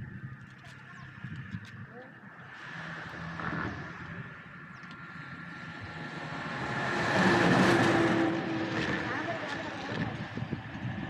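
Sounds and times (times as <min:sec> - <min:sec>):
vehicle engine passing by: 0:02.5 - 0:10.4.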